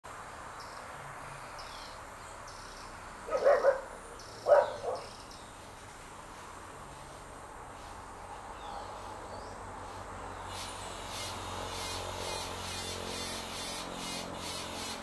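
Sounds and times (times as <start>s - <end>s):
dog barking: 3.3s - 5.1s
high buzzy chirp: 10.4s - 15.0s.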